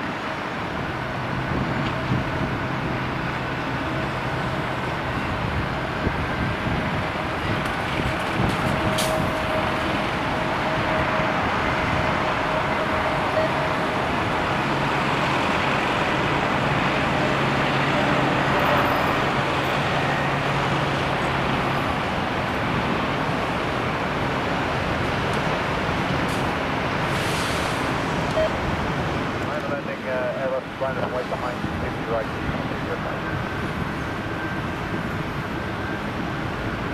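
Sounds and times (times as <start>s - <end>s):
wind on microphone: 0.0s - 17.8s
aircraft engines roaring: 0.0s - 36.9s.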